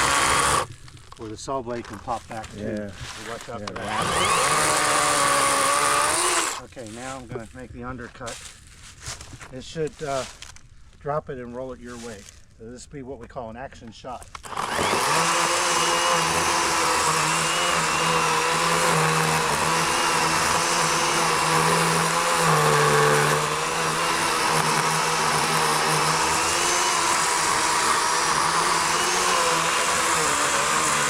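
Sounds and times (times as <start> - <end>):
electric chainsaw cutting log: 0.0 - 1.0, 3.6 - 6.7, 14.3 - 31.0.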